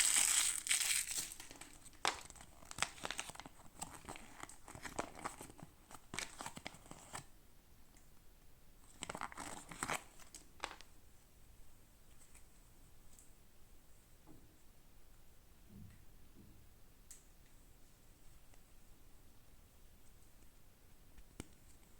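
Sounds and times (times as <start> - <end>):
packaging crinkling and tearing: 0.0 - 7.3, 9.0 - 10.8.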